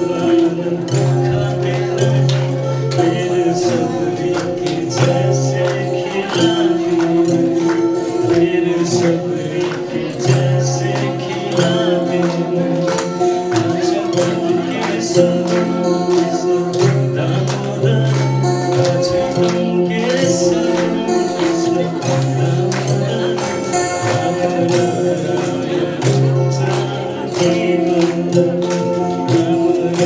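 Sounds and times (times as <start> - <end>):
jingling percussion: 0.0 - 30.0.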